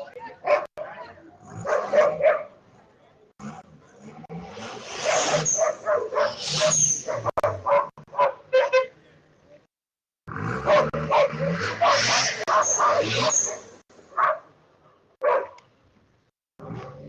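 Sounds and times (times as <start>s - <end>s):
dog barking: 0.4s - 2.6s, 5.0s - 8.9s, 10.6s - 15.6s.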